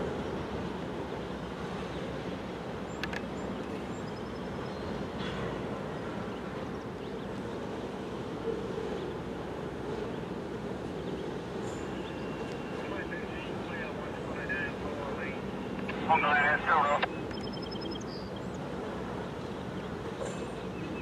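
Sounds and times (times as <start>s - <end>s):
distant freight train rumble: 0.0s - 21.0s
faint clicks: 2.9s - 3.3s.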